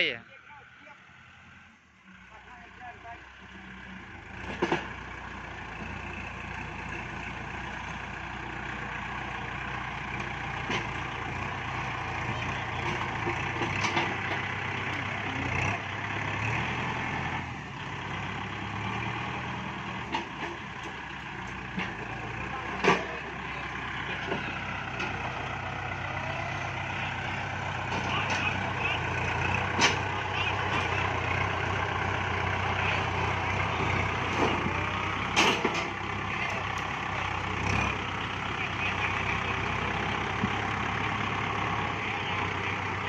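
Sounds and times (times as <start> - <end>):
tractor diesel engine running: 0.0 - 43.0
knocks and clanks: 4.4 - 5.0, 12.6 - 15.1, 19.9 - 23.2, 27.8 - 31.1, 33.0 - 38.1.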